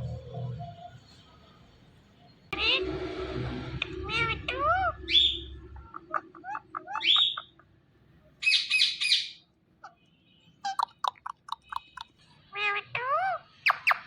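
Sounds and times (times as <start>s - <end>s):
parakeet harsh squawk: 2.6s - 2.9s, 3.8s - 7.5s, 8.4s - 10.0s, 10.6s - 14.0s
parakeet chirping and whistling: 4.2s - 5.6s, 6.9s - 7.5s, 8.4s - 9.4s, 10.6s - 12.1s, 13.0s - 14.0s.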